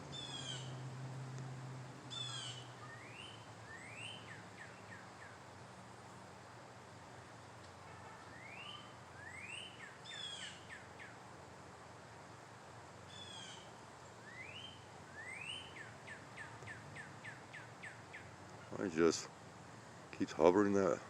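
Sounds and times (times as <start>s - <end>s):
songbird singing whistled notes: 0.1s - 0.7s, 2.1s - 5.4s, 8.3s - 11.2s, 13.1s - 18.3s.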